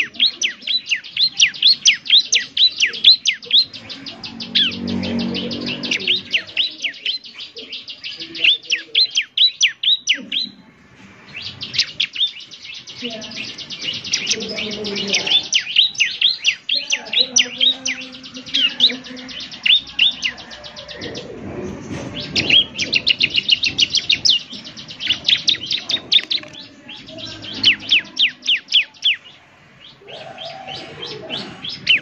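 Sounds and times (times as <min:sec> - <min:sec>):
bird song trills and whistles: 0:00.0 - 0:10.6, 0:11.3 - 0:32.0
low rushing noise: 0:03.7 - 0:06.7.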